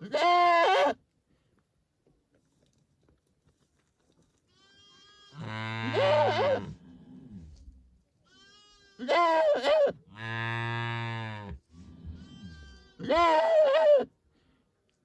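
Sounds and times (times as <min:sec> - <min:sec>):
goat bleating: 0:00.0 - 0:01.0, 0:04.5 - 0:06.8, 0:08.2 - 0:14.1.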